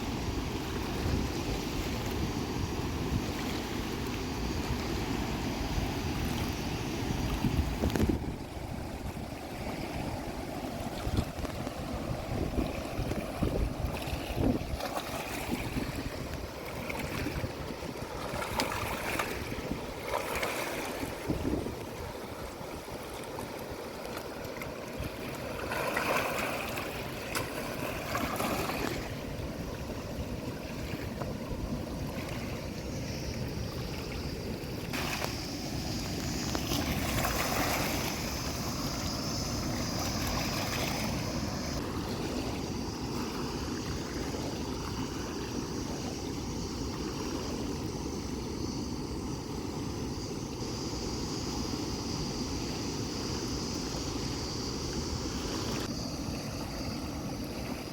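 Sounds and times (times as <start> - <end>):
flowing water rushing: 0.0 - 57.9
wind rumble on microphone: 0.0 - 57.9.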